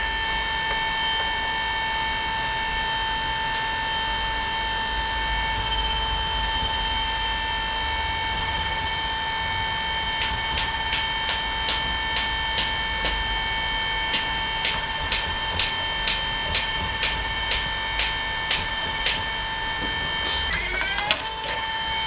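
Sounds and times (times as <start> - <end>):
small electric motor whining: 17.1 - 22.0.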